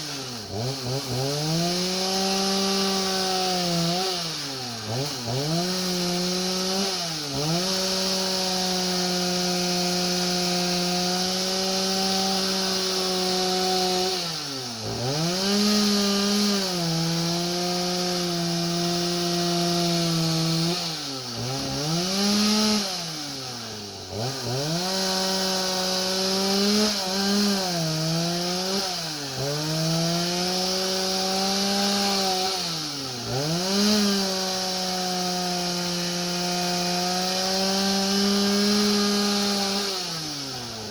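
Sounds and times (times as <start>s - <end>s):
chainsaw engine cutting wood: 0.0s - 40.9s.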